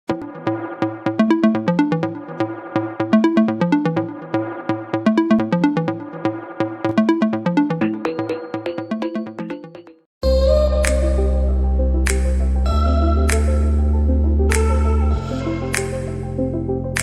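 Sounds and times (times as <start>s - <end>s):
drum machine beat: 0.1s - 10.0s
synthesizer bass line: 0.1s - 17.0s.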